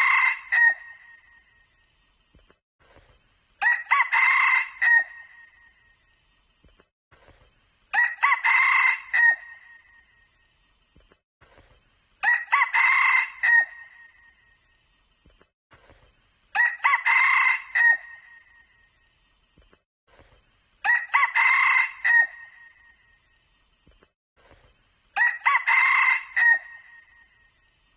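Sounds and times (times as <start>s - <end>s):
rooster crowing: 0.0s - 1.0s, 3.6s - 5.4s, 7.9s - 9.7s, 12.2s - 14.0s, 16.6s - 18.3s, 20.8s - 22.7s, 25.2s - 27.1s.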